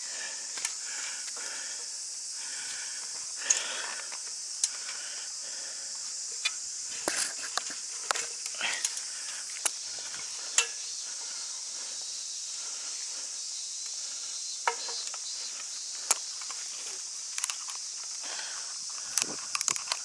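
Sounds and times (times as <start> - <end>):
high-pitched insect chorus: 0.0 - 20.0
sharp clicks and knocks: 14.6 - 15.2.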